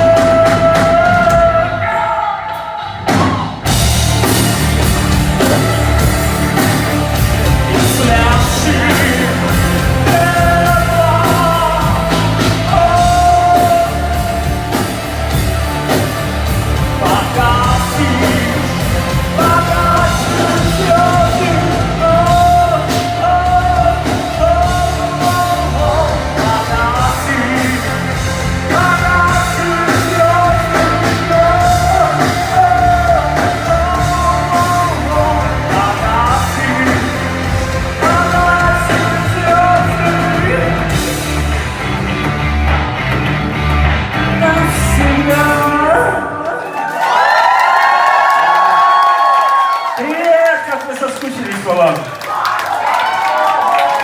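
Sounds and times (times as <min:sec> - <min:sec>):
live rock band playing: 0:00.0 - 0:01.8, 0:03.0 - 0:46.4
singer holding long notes: 0:00.0 - 0:41.8.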